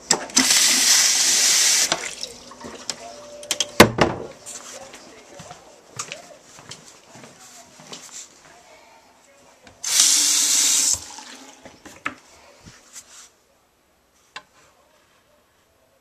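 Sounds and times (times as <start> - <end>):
water rushing from faucet: 0.4 - 2.7, 9.8 - 11.6.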